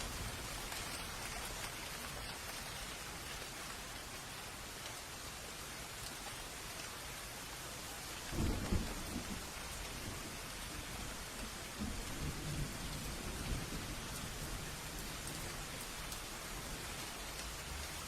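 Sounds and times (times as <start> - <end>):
steady rain falling: 0.0 - 18.0
low thunder rumble: 8.3 - 15.8.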